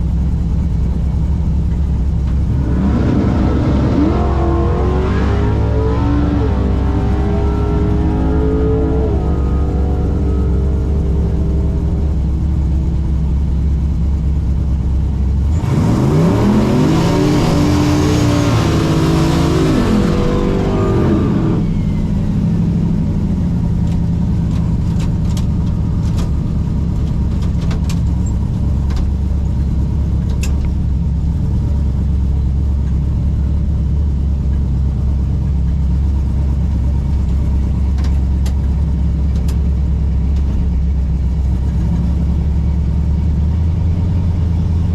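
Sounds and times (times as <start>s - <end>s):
faint falling whine: 1.7s - 14.9s
car engine revving: 2.2s - 31.7s.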